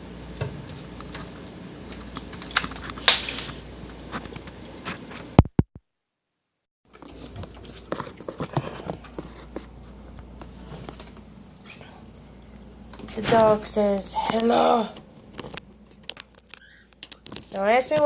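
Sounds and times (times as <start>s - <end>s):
steady low hum: 7.0s - 17.2s.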